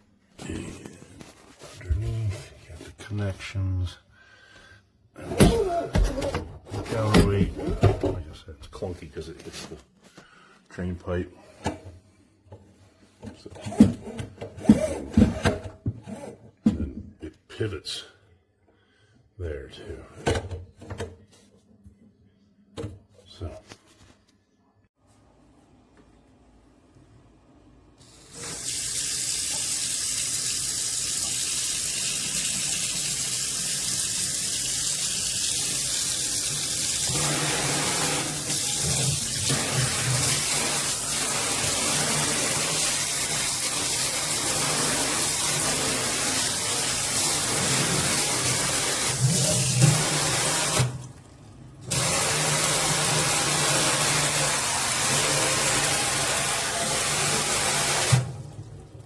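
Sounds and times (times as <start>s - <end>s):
faucet water running into sink: 28.0s - 59.0s.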